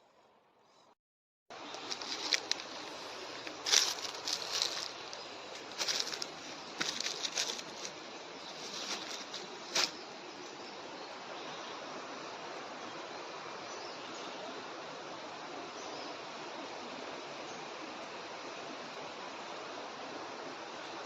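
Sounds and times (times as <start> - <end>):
stream water rushing: 1.5 - 21.0
crackling rustles: 1.6 - 10.6.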